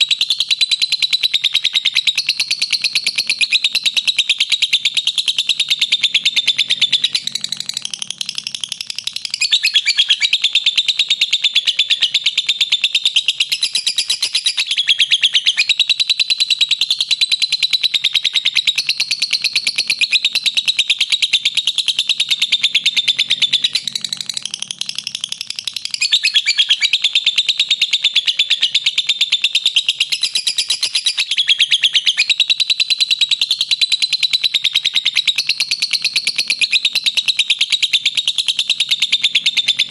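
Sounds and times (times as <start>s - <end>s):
lovebird rapid shrill chatter: 0.0s - 16.2s, 17.1s - 32.7s.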